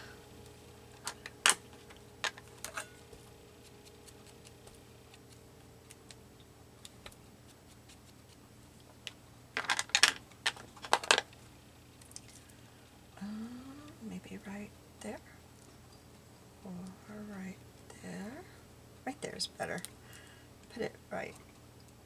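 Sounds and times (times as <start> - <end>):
faint steady hum: 0.0 - 22.0
paper stickers clicking and tapping: 1.0 - 6.2, 9.1 - 11.3.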